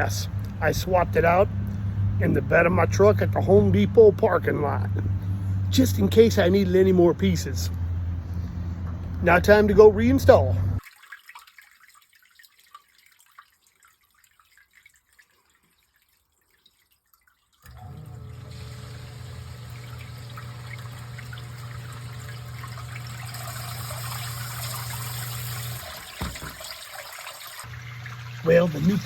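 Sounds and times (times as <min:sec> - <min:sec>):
sump pump motor hum: 0:00.0 - 0:10.8, 0:17.6 - 0:29.0
water rushing and trickling: 0:10.8 - 0:29.0.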